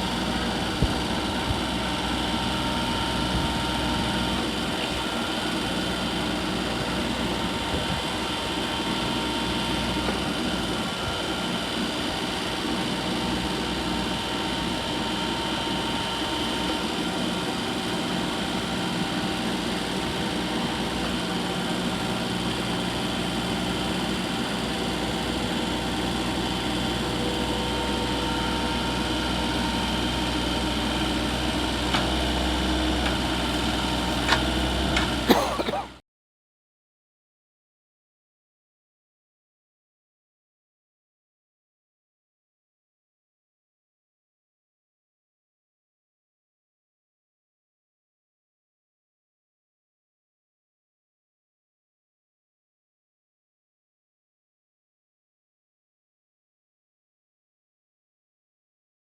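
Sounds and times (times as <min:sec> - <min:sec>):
tractor engine running: 0:00.0 - 0:35.8.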